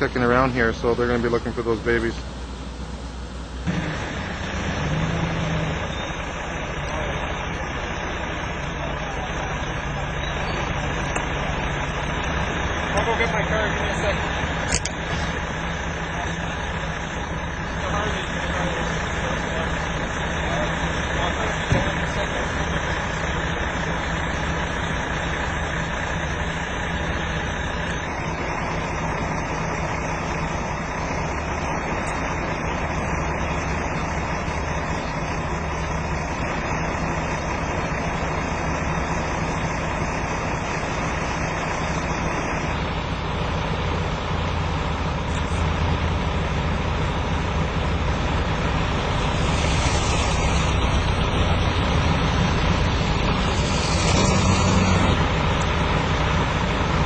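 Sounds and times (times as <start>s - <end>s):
road noise: 0.0s - 57.0s
vehicle engine hum: 0.0s - 57.0s.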